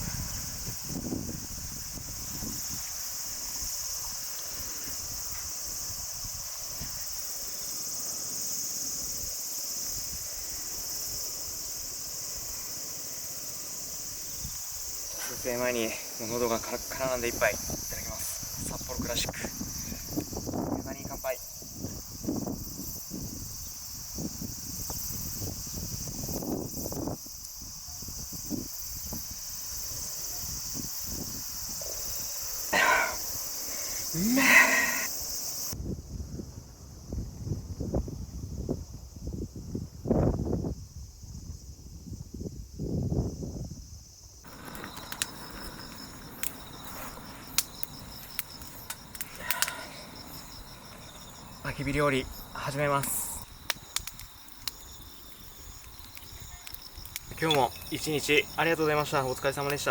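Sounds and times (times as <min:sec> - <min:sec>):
insects shrilling: 0:00.0 - 0:35.8, 0:44.1 - 0:59.9
crickets chirping: 0:00.0 - 0:59.9
wood fire crackling clicks: 0:44.5 - 0:52.1, 0:52.7 - 0:59.9.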